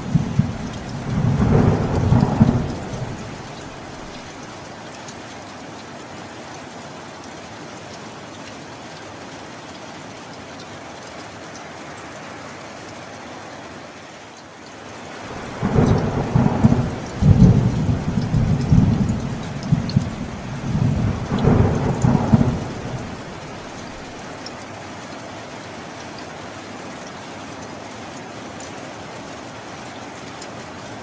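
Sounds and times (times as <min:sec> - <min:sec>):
thunder rumbling: 0:00.0 - 0:04.3, 0:15.3 - 0:24.2
steady rain falling: 0:00.0 - 0:31.0.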